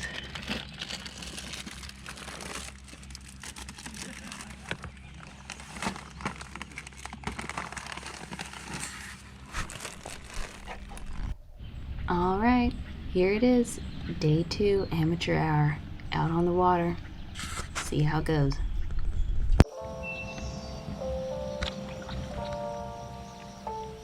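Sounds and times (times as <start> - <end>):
rustling and crinkling: 0.0 - 11.4, 17.3 - 18.0
steady low hum: 0.0 - 24.0.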